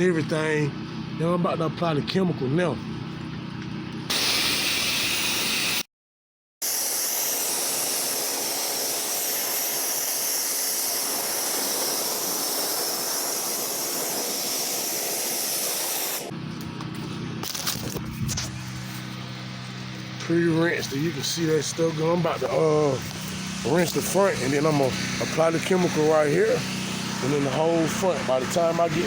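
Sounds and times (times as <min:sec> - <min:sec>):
pressure washer spray hissing: 0:04.1 - 0:05.9, 0:06.6 - 0:16.3, 0:18.5 - 0:29.0.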